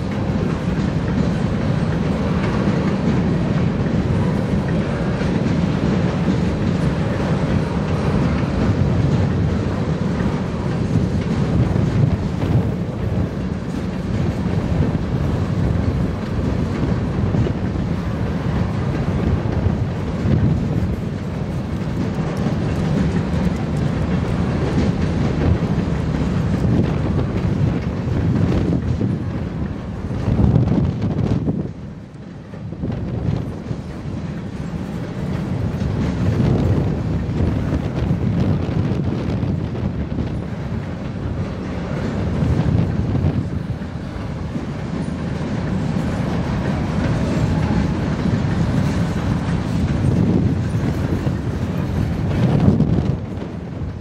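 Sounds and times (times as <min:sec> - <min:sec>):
train wheels rumbling on rails: 0:00.0 - 0:54.0
wind buffeting microphone: 0:00.0 - 0:54.0.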